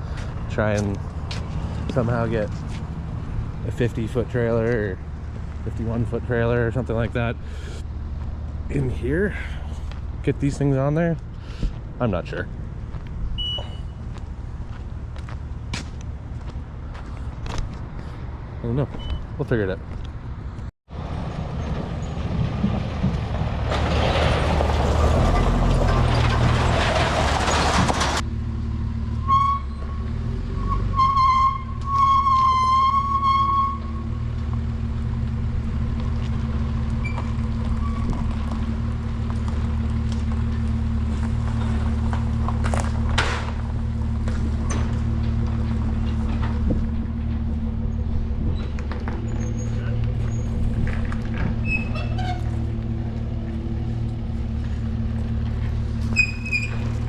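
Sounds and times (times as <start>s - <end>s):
large engine idling: 33.8s - 57.0s.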